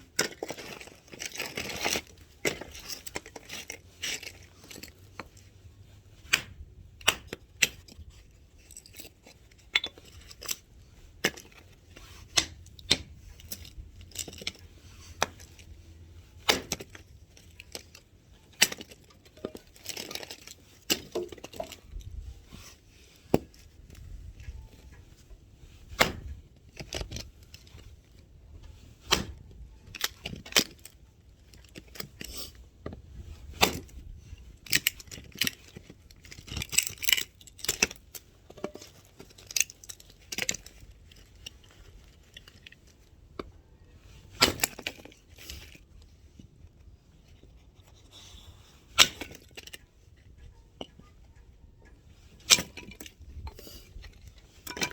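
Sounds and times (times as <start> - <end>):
axe chopping wood: 6.3 - 7.8, 16.4 - 17.0, 25.9 - 26.4, 29.1 - 29.4, 33.5 - 33.9.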